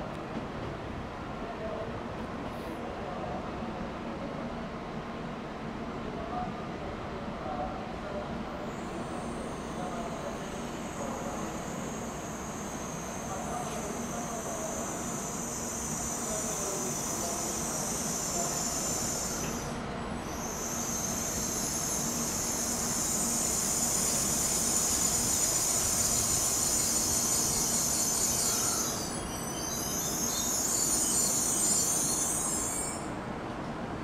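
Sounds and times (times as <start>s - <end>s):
train rumble: 8.5s - 32.7s
high-pitched brake squeal: 8.7s - 33.2s.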